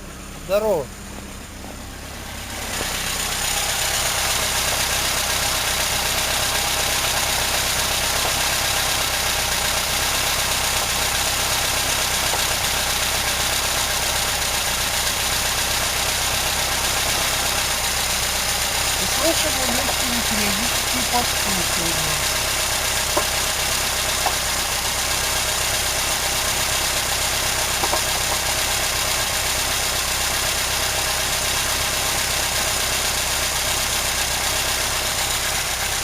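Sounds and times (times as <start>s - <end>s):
car engine idling: 0.0s - 36.0s
light irregular engine knocks: 2.7s - 3.3s, 6.6s - 11.4s, 12.0s - 13.2s, 22.2s - 25.4s, 27.1s - 29.0s.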